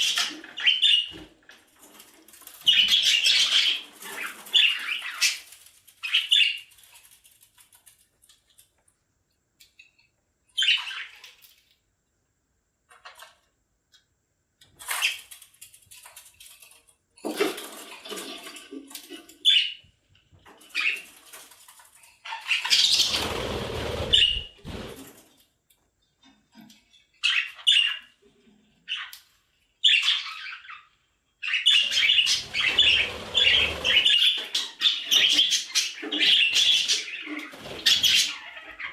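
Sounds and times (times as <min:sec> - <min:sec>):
budgerigars chirping and squawking: 0:00.0 - 0:01.2, 0:02.6 - 0:06.8, 0:10.6 - 0:11.3, 0:19.4 - 0:19.9, 0:20.6 - 0:21.2, 0:22.2 - 0:24.9, 0:27.2 - 0:28.2, 0:28.8 - 0:29.2, 0:29.8 - 0:38.9.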